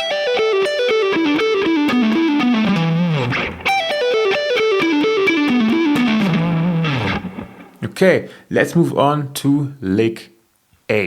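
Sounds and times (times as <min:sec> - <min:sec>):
electric guitar fast descending run: 0:00.0 - 0:07.8.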